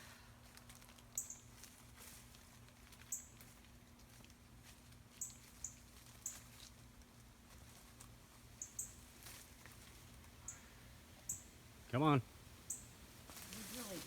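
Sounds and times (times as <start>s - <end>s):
bird alarm chips: 8.6s - 9.1s, 10.3s - 14.0s.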